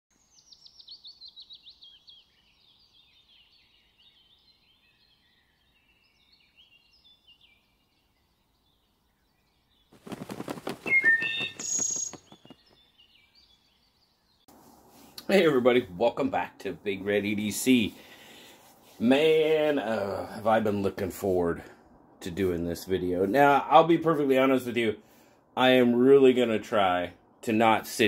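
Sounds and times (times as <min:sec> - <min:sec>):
soft bird chirps: 0:00.1 - 0:19.0
bird whistles falling in pitch: 0:10.2 - 0:12.8.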